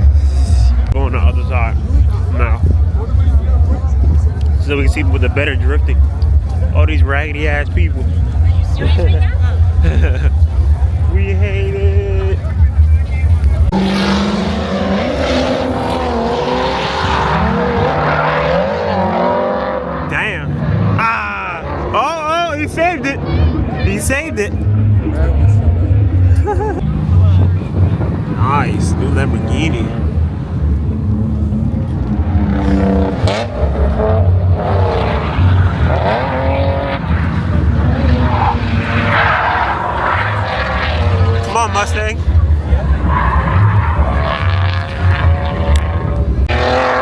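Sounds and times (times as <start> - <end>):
car engine revving: 0.0 - 47.0
tire squeal: 34.6 - 45.9.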